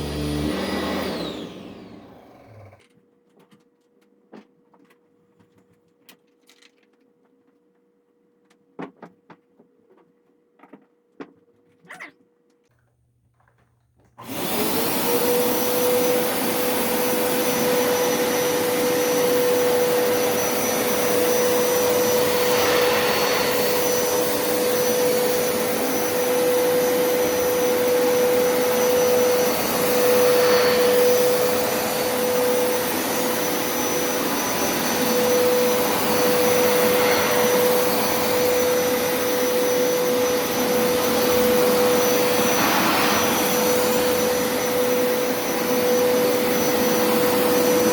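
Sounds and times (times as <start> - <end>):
carpet cleaner running: 0.0 - 2.9, 14.2 - 47.9.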